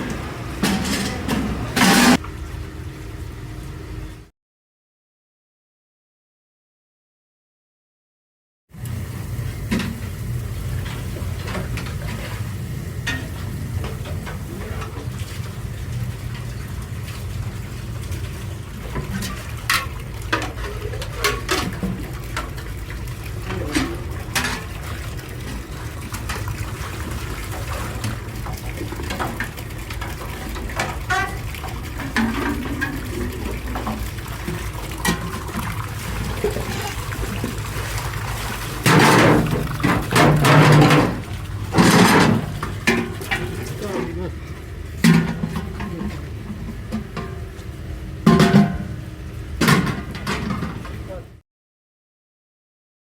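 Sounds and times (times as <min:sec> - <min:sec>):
factory machinery humming: 0:00.0 - 0:04.3, 0:35.0 - 0:48.3.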